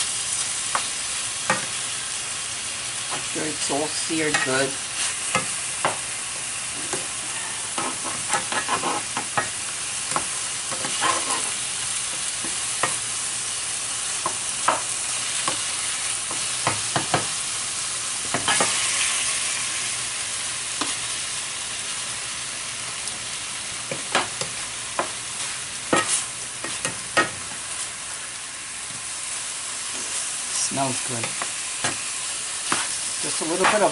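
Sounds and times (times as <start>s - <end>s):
meat sizzling in a pan: 0.0s - 33.9s
utensil tapping meat: 31.2s - 33.9s.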